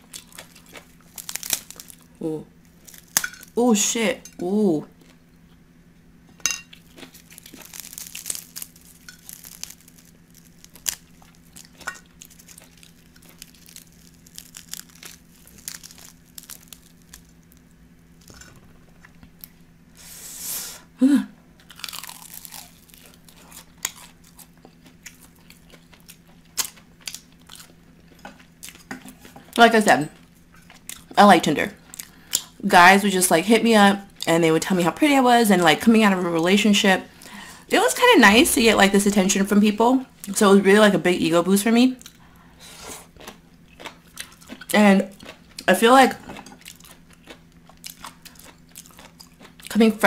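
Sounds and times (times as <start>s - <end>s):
crunchy wet chewing: 0.0s - 3.6s, 6.7s - 19.6s, 21.6s - 31.2s, 42.0s - 49.8s
faint steady low hum: 0.0s - 50.0s
chicken wing torn apart: 1.0s - 2.1s, 7.1s - 17.6s.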